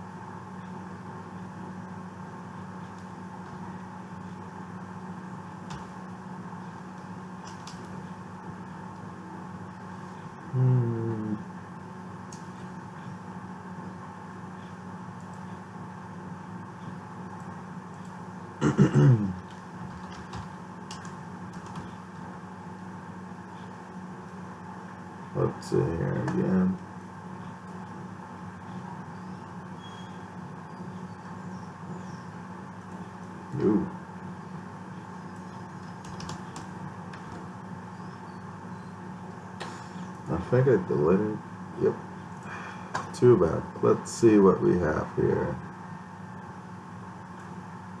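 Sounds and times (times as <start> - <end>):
steady background hum: 0.0 - 48.0
murmured vocal sound: 10.5 - 11.5.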